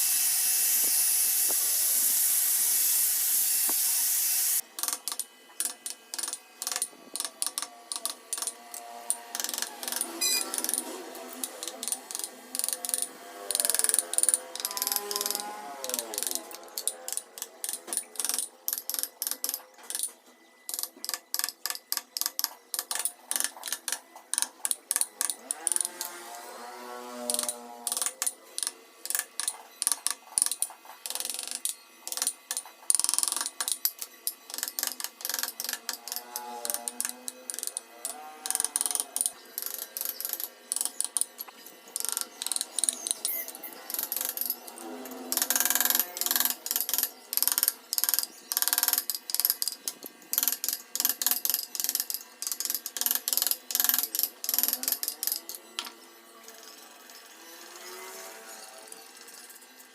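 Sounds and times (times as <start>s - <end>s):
carving tools cutting wood: 0.0s - 20.1s, 20.7s - 59.9s
short squeaking tones: 10.2s - 10.7s.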